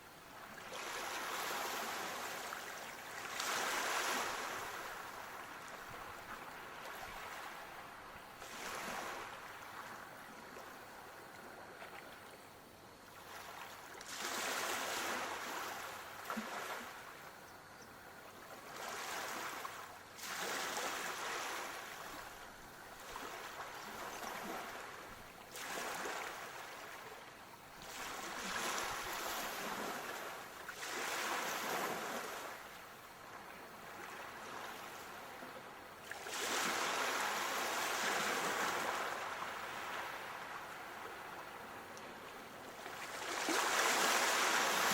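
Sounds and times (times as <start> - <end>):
sea waves washing onto shore: 0.6 - 10.2, 18.6 - 32.9, 36.0 - 44.9.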